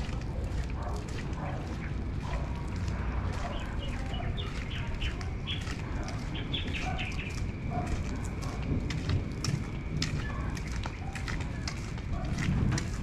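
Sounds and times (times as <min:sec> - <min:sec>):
small birds chirping: 0:00.0 - 0:08.6.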